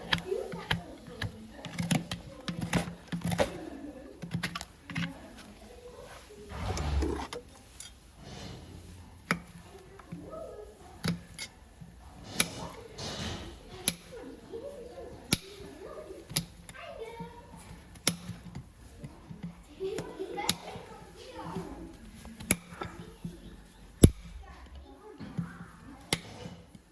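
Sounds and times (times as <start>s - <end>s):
people talking: 0.0s - 8.4s, 9.6s - 17.9s, 18.9s - 26.8s.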